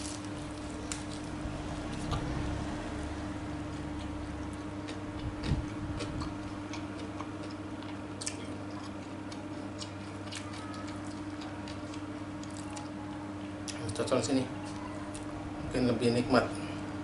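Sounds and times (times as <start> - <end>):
steady low hum: 0.0 - 17.0
person chewing: 3.7 - 13.8.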